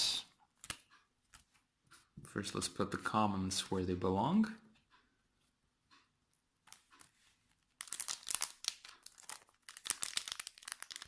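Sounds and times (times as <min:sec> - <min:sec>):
foil wrapper crinkling: 0:07.6 - 0:11.0.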